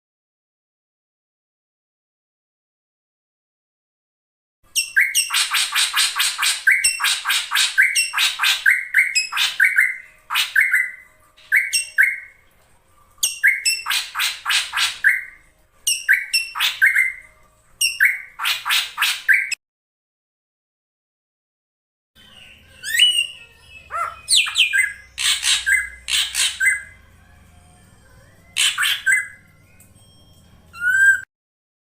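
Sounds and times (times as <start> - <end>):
bird clear whistles: 30.8 - 31.3.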